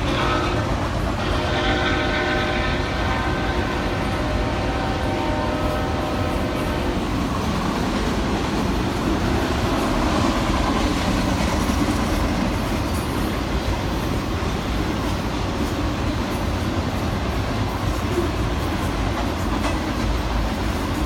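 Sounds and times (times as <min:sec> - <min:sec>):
train rolling past: 0:00.0 - 0:21.0.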